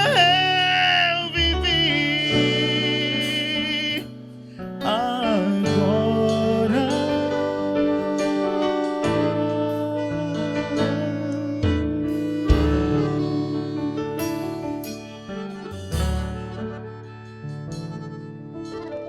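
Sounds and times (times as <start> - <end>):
sliding lead melody: 0.0 - 19.0
sustained keyboard chords: 0.0 - 19.0
sung note with vibrato: 5.4 - 18.8.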